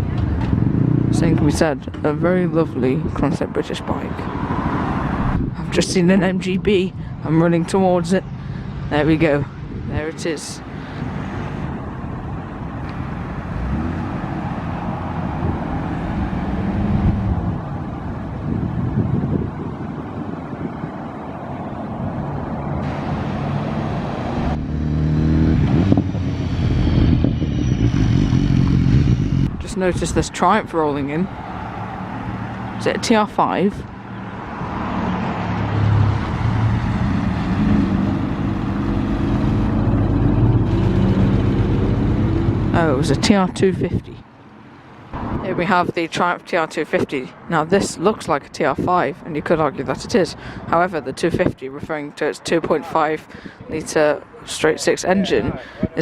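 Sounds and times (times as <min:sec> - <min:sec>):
sports car engine running: 0:24.5 - 0:29.6.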